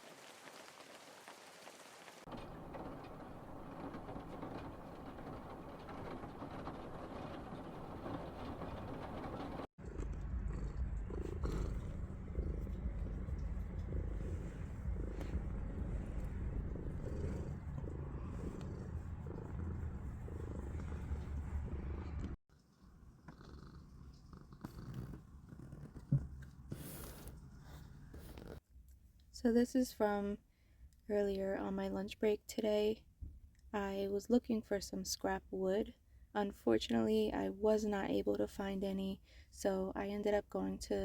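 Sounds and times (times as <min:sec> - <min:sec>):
cat purring: 0:02.3 - 0:28.6.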